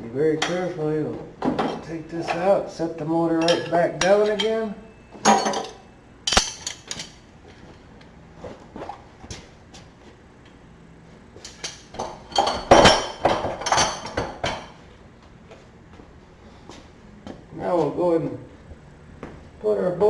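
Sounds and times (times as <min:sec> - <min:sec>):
metal tools clinking and clanking: 0:03.4 - 0:07.2.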